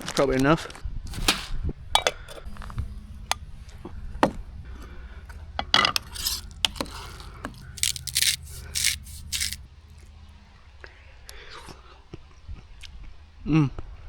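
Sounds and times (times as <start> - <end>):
metal pot and utensil clinking: 1.1 - 2.8.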